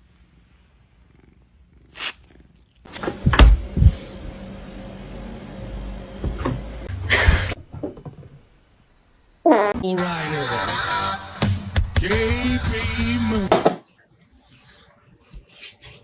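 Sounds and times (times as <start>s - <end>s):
cat purring: 0.9s - 2.8s.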